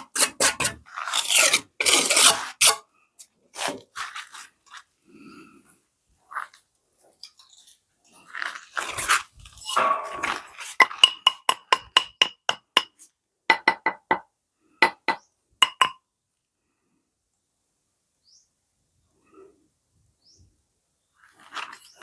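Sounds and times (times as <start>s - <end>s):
rustling and scraping: 0.0s - 2.8s, 3.5s - 5.0s, 6.2s - 11.1s, 21.2s - 22.0s.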